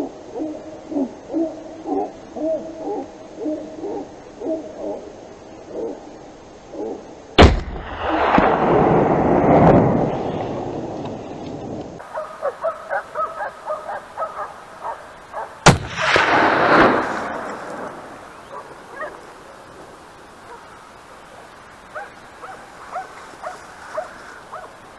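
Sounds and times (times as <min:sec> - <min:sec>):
rifle shot with echo: 0:07.4 - 0:10.5, 0:15.6 - 0:18.6
dogs barking: 0:12.0 - 0:15.6, 0:18.5 - 0:19.4, 0:20.4 - 0:20.8, 0:21.9 - 0:24.8.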